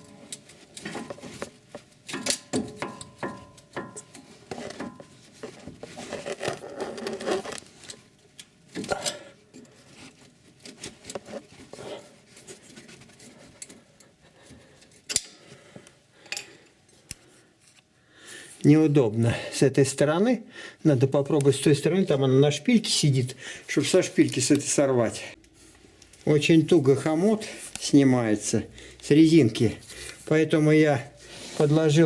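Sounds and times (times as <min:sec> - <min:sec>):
metallic clicks and knocks: 0:02.1 - 0:05.1.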